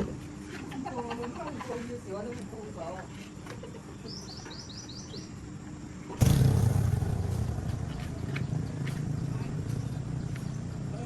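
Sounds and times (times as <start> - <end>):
mechanical noise with low hum: 0.0 - 11.0
small bird chirping: 3.9 - 5.4, 7.3 - 11.0.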